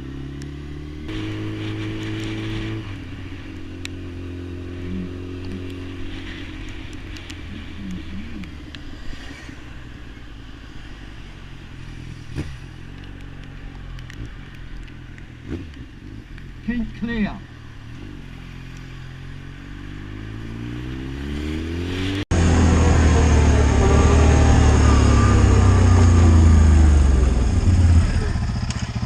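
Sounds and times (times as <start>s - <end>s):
motorcycle engine running: 22.0s - 29.0s.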